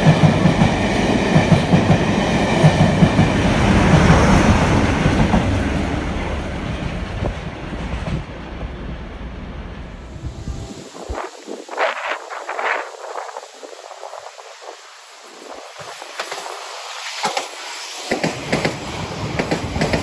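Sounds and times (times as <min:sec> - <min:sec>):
diesel locomotive passing: 0:00.0 - 0:20.0
train wheels clattering over rail joints: 0:15.7 - 0:20.0.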